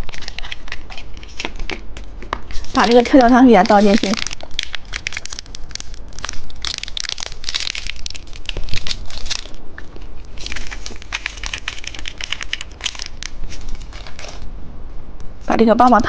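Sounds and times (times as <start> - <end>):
popping candy crackling: 0.0 - 14.4
wrapper crinkling: 0.0 - 14.5.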